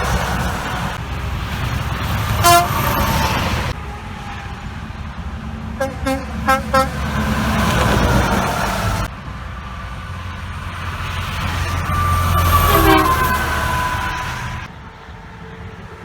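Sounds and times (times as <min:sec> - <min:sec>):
highway traffic passing: 0:00.0 - 0:16.0
truck horn blasts: 0:02.3 - 0:03.4, 0:05.7 - 0:08.3, 0:11.8 - 0:14.7.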